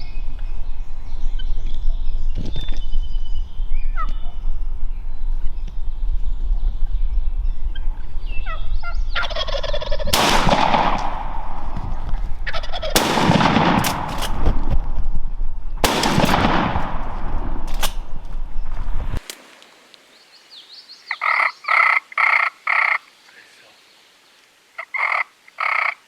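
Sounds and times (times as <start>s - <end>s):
turkey yelping: 9.2s - 10.0s, 21.1s - 23.0s, 24.8s - 26.0s
turkey gobbling: 9.2s - 10.1s, 12.4s - 13.0s, 21.1s - 23.1s, 24.8s - 26.0s.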